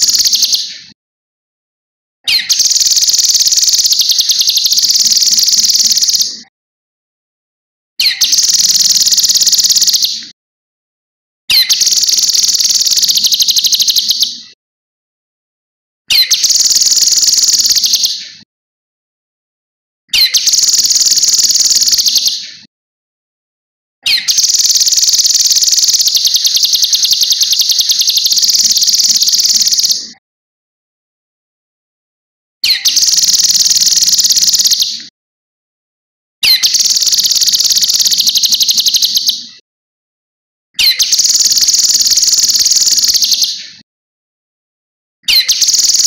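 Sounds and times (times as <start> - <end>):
songbird rattling trill: 0.0 - 0.7, 2.3 - 6.4, 8.0 - 10.2, 11.5 - 14.3, 16.1 - 18.2, 20.2 - 22.4, 24.0 - 30.1, 32.6 - 34.9, 36.4 - 39.4, 40.8 - 43.6, 45.3 - 46.0.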